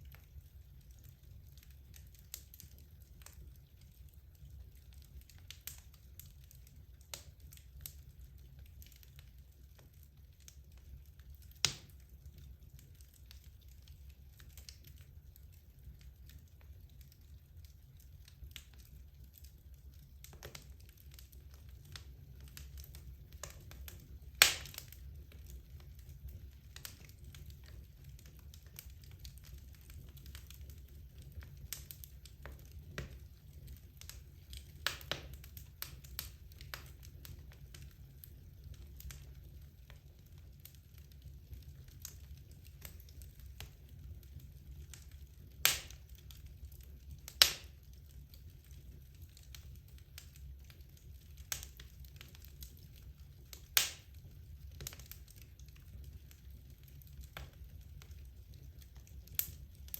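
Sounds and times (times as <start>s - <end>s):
low rumble of fire: 0.0s - 59.9s
wood fire crackling: 0.0s - 59.9s
loud sharp pops: 24.4s - 24.8s, 45.6s - 46.0s.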